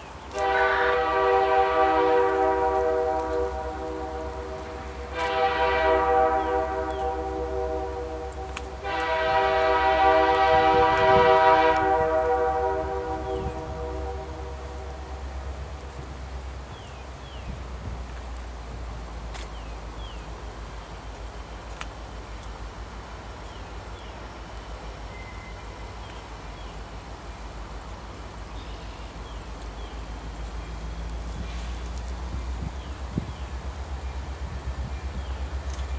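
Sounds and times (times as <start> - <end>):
passing train rumble: 0.0 - 35.9
locomotive air horn blasts: 0.3 - 15.5.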